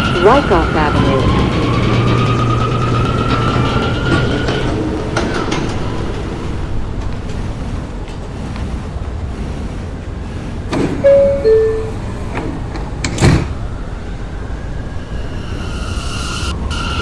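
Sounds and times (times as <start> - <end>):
doors shutting with heavy knock: 0.0 - 7.4
subway train rumble: 0.0 - 17.0
two-note door chime: 11.0 - 12.4.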